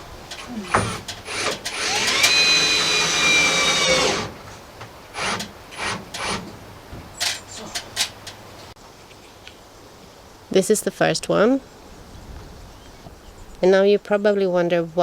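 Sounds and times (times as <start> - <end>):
cordless drill driving screw: 0.4 - 4.4, 5.2 - 6.4.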